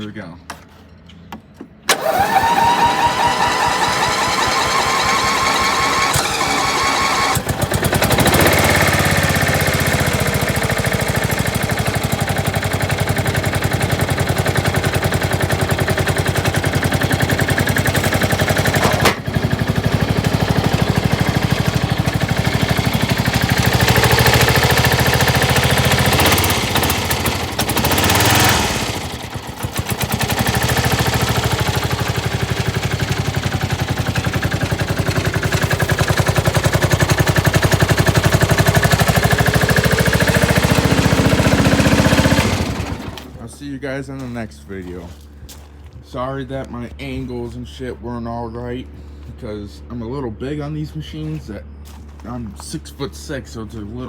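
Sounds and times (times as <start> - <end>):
electric starter cranking: 1.6 - 43.5
mower engine running: 1.6 - 46.0.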